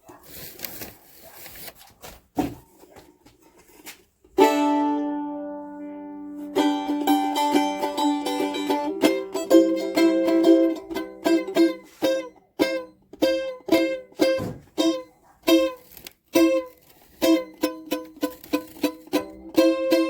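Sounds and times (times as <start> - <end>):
mandolin picking: 4.3 - 20.0.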